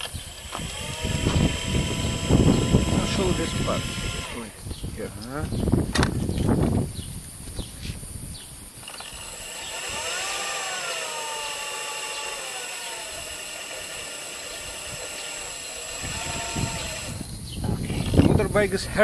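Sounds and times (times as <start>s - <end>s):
electric motor spinning: 0.0s - 4.6s, 8.8s - 18.4s
high electronic whine: 0.0s - 4.7s, 6.4s - 19.0s.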